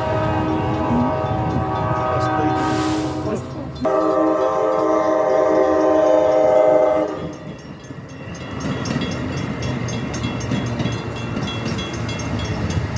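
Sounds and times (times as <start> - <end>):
train horn chord: 0.0 - 7.4
train wheels clattering on rails: 0.0 - 12.9.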